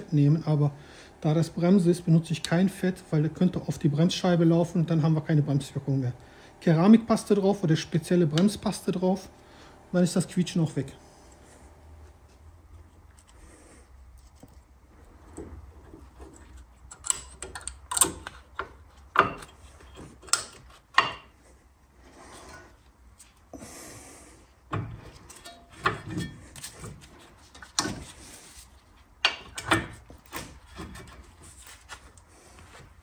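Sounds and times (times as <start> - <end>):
metal clicks and knocks: 16.2 - 21.3.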